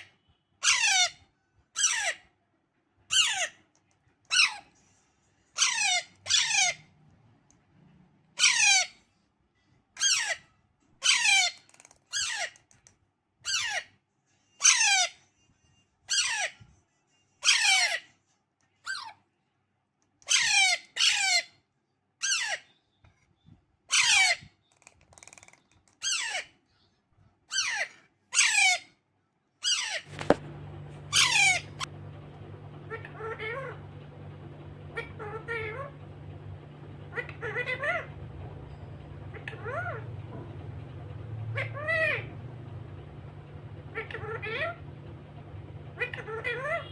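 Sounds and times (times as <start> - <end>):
parakeet chick squawking: 5.6 - 6.9, 8.4 - 9.0, 11.0 - 11.6, 29.6 - 31.9, 32.7 - 46.9
steady low hum: 30.0 - 46.9.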